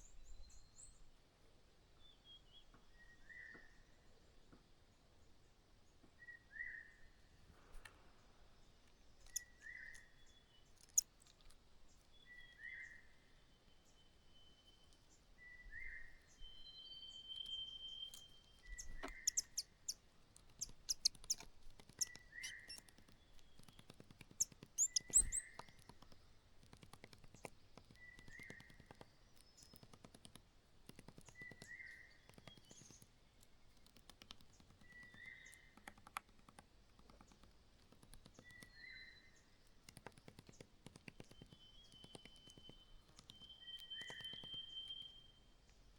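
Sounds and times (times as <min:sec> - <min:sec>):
small birds calling: 0:08.6 - 0:45.4
thin bird chirps: 0:08.6 - 0:45.9
held bird whistle: 0:16.7 - 0:19.7, 0:22.0 - 0:22.8, 0:24.8 - 0:25.6, 0:41.3 - 0:45.4
sharp clicks and scratches: 0:18.2 - 0:38.8, 0:39.8 - 0:45.0.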